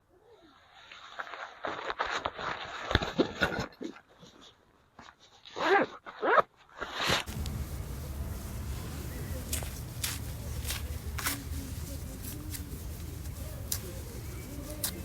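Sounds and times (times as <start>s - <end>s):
steady rushing noise: 7.3s - 15.0s.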